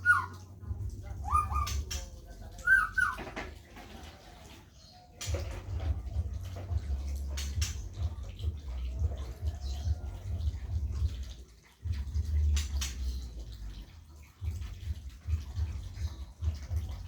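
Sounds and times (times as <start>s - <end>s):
squeaky animal calls: 0.0s - 0.5s, 1.2s - 1.9s, 2.6s - 3.4s
water splashing: 0.0s - 17.0s.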